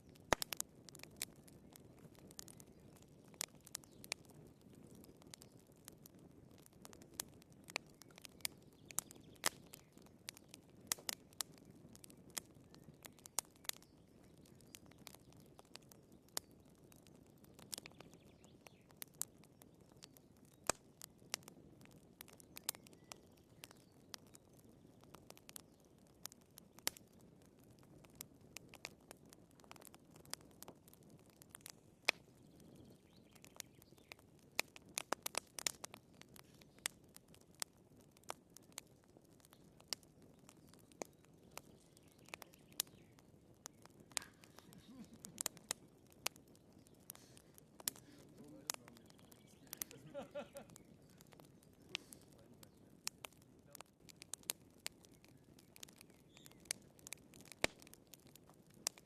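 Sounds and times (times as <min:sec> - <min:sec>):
firewood crackling and popping: 0:00.0 - 0:59.0
fire flames rushing: 0:26.3 - 0:59.0.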